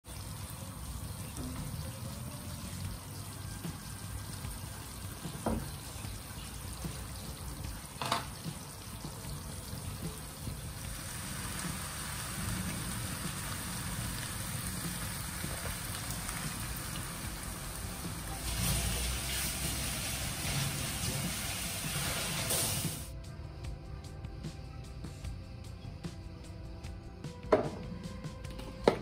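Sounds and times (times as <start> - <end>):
seafood sizzling in a wok: 0.1 - 23.2.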